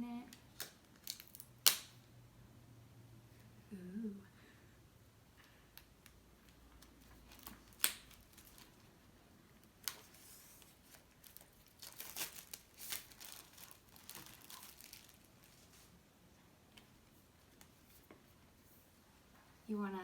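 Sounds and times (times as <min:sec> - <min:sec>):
plastic packaging crinkling and tearing: 0:00.3 - 0:02.0, 0:06.8 - 0:08.9, 0:09.6 - 0:16.0.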